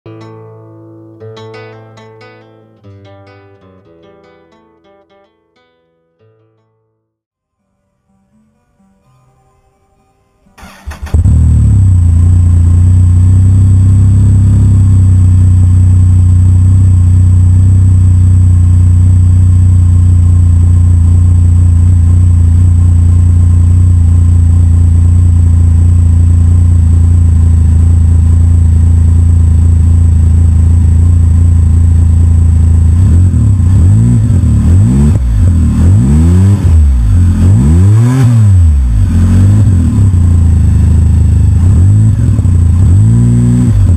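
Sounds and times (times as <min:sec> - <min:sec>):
motorcycle engine idling and revving: 0:10.6 - 0:43.9.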